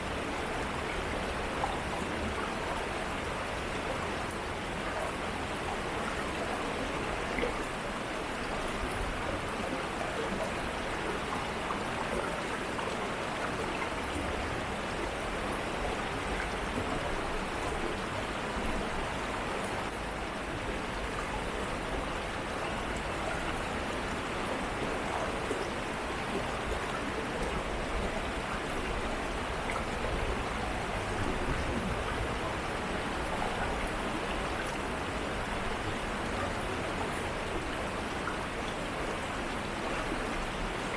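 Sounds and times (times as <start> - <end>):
shallow stream flowing: 0.0 - 40.9.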